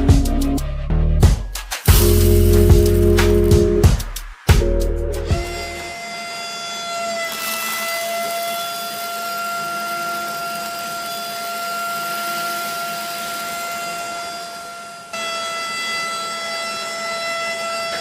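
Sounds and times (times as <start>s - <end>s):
electric motor whine: 5.4s - 16.4s.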